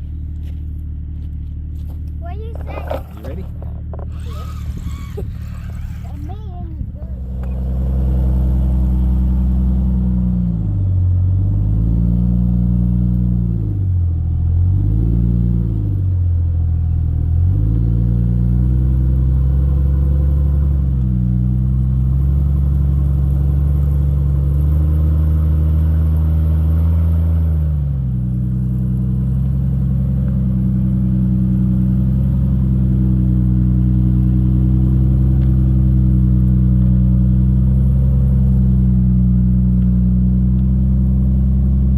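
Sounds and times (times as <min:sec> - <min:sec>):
car engine revving: 0:02.3 - 0:16.0.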